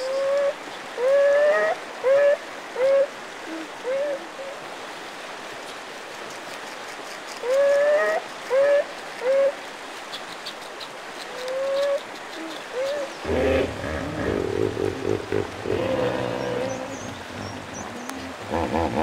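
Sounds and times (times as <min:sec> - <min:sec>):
running water: 0:00.0 - 0:19.0
hippopotamus bellowing grunts: 0:13.2 - 0:19.0.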